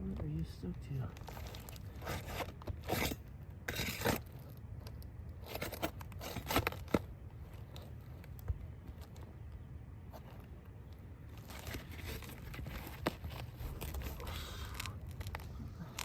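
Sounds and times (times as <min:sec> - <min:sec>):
roof shingle scraping and tearing: 0:01.1 - 0:04.6, 0:05.3 - 0:08.2, 0:11.3 - 0:16.0.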